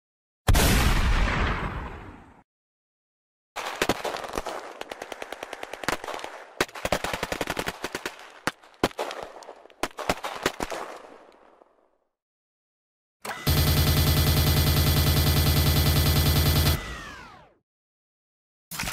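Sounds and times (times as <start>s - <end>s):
loud gunshot: 0.5s - 2.2s
automatic gunfire: 13.4s - 17.5s.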